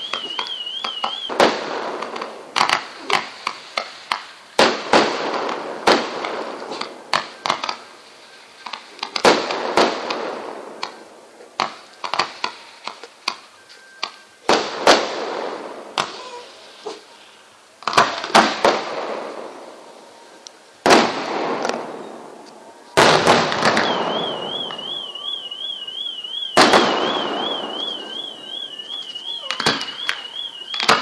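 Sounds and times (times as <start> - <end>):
fireworks bangs and crackles: 0.0 - 17.2, 17.8 - 20.2, 20.8 - 31.0
fireworks hissing rush: 1.3 - 10.7.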